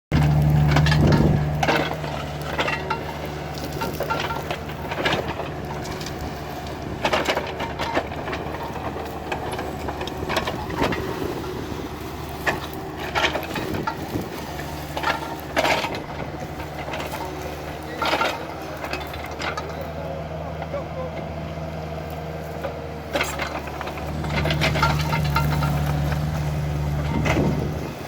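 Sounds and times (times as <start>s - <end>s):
diesel engine running: 0.1s - 28.0s
wood and branches breaking: 0.2s - 19.9s, 22.5s - 28.0s.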